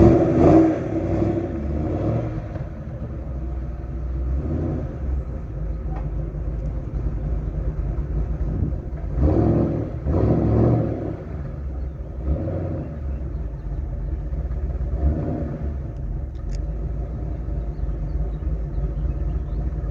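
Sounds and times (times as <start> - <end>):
car exhaust choppy low rumble: 0.0 - 19.9.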